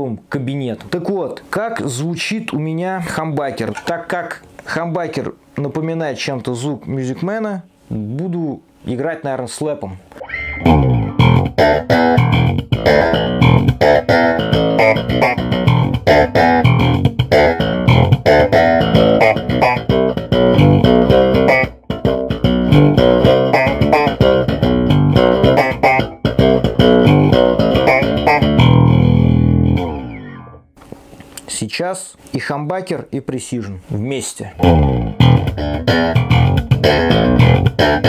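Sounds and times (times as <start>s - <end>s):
slap bass notes through amplifier: 10.2s - 30.7s, 34.6s - 38.0s.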